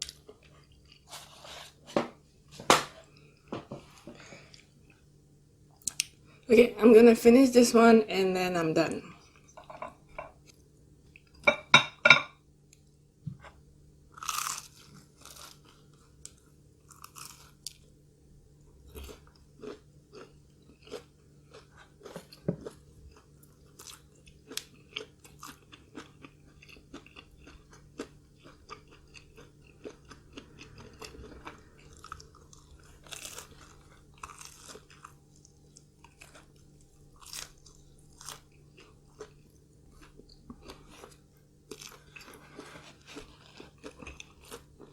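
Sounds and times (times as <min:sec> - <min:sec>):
person chewing crunchy food: 0:00.0 - 0:01.8, 0:13.4 - 0:17.9, 0:18.6 - 0:44.9.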